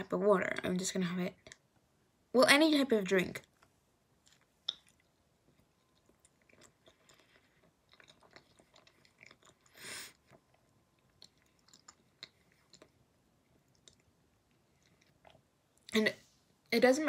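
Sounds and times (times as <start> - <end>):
faint chewing with wet clicks: 0.4 - 1.9, 3.1 - 16.0.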